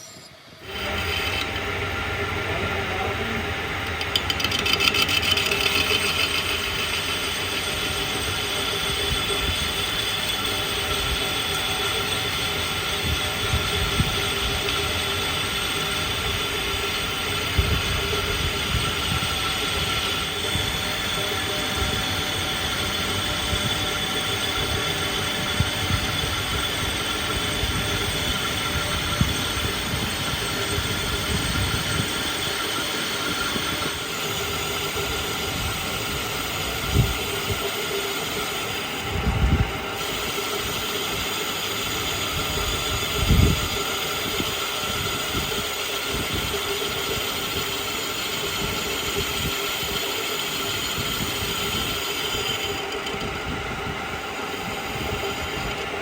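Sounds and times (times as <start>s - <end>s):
machine metallic whine: 0.0s - 56.0s.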